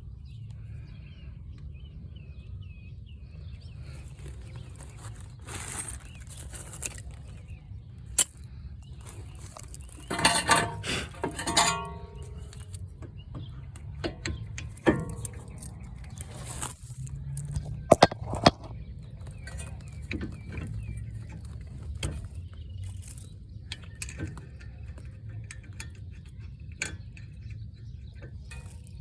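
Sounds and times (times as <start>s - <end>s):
metal tools clinking: 9.0s - 18.6s.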